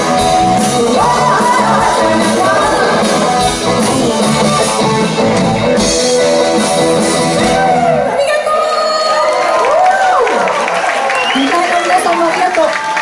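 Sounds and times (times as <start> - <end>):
live rock band playing: 0.0 - 8.7.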